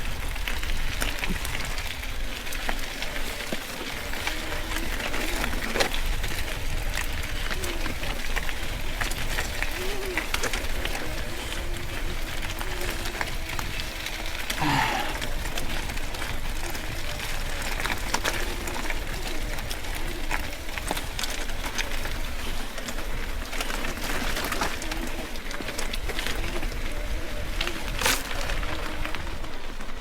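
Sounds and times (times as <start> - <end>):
bike clicks and rattles: 0.0 - 30.0
tyres crunching over stones: 0.0 - 30.0
wind rumble on microphone: 0.0 - 30.0.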